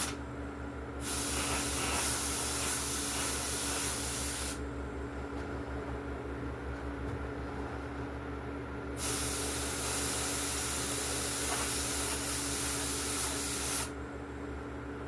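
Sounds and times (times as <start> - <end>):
paint spray gun hissing: 1.0 - 4.6, 9.0 - 13.9.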